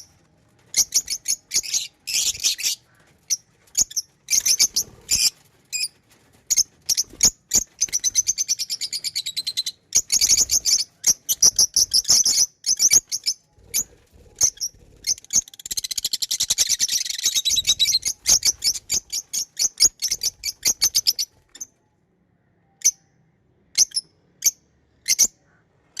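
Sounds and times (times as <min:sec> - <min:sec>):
lovebirds chirping: 0:00.7 - 0:05.3, 0:06.5 - 0:21.8.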